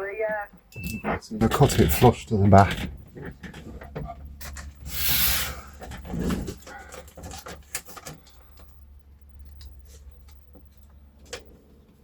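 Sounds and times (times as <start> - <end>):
small clicks and handling noise: 5.8 - 8.8, 9.4 - 12.0.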